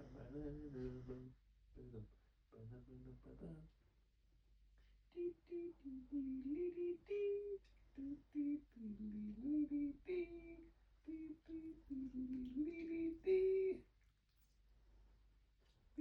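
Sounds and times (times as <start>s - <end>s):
woman humming: 5.1s - 13.8s.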